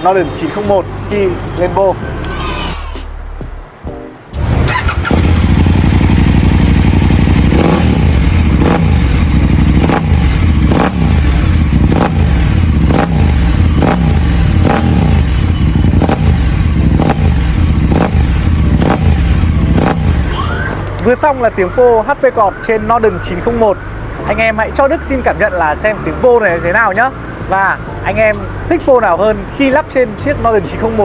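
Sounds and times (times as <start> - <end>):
motorcycle engine throttle blips: 4.4 - 21.2.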